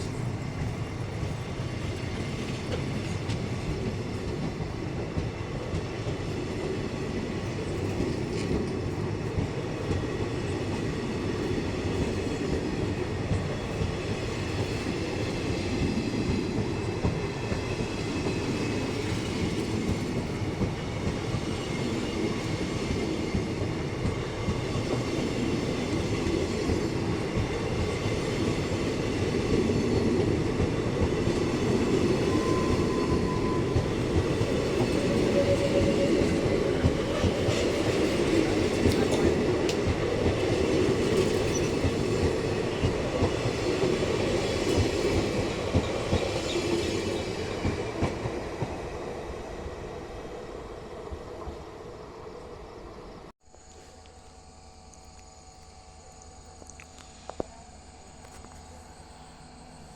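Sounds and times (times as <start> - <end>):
train wheels clacking on rail joints: 0.0 - 49.1.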